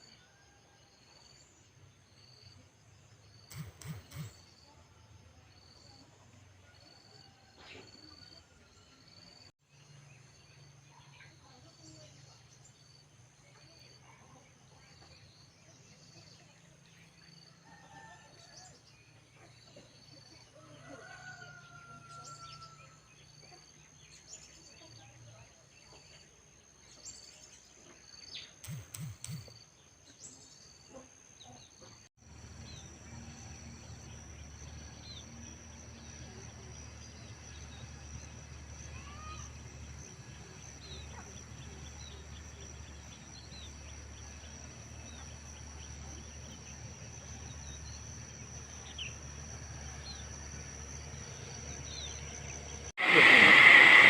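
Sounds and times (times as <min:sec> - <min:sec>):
steady high whine: 0:03.2 - 0:04.8, 0:28.6 - 0:29.6, 0:32.2 - 0:54.0
sharp clicks: 0:03.5 - 0:04.5, 0:28.6 - 0:29.5
low hum: 0:32.2 - 0:54.0.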